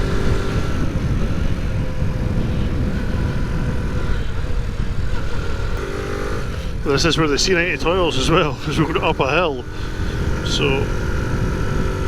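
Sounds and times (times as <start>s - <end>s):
small motorcycle engine running: 0.0s - 12.0s
wind rumble on microphone: 0.0s - 12.0s.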